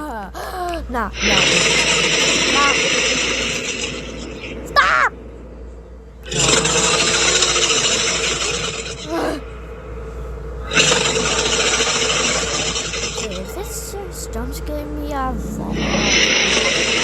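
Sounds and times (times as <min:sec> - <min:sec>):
harsh rasping animal calls: 0:01.1 - 0:05.2, 0:06.2 - 0:13.8.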